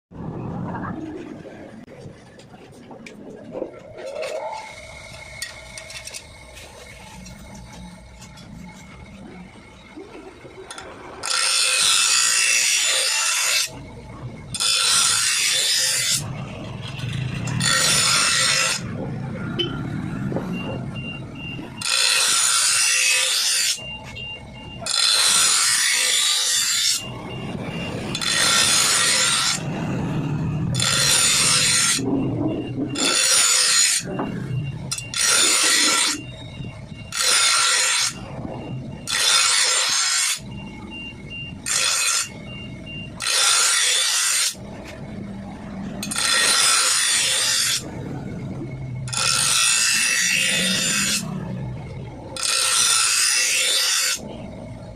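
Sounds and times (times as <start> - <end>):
file rasping on metal blade: 28.1 - 29.6, 34.9 - 36.2, 43.2 - 44.6, 46.0 - 47.8, 52.4 - 54.2.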